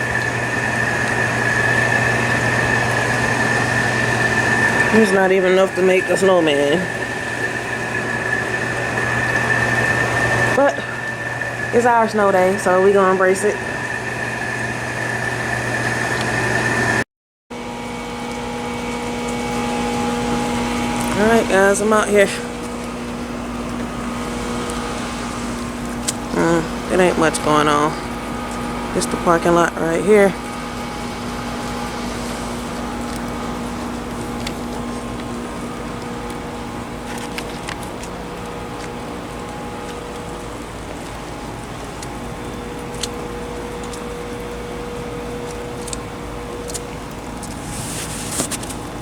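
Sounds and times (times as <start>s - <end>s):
machine hum with high whine: 0.0s - 49.0s
lower steady hum: 17.6s - 49.0s.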